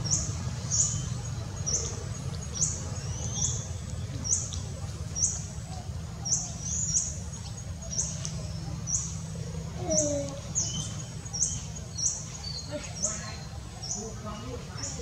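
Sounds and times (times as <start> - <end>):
bird chirping: 0.0 - 5.5, 9.8 - 15.0.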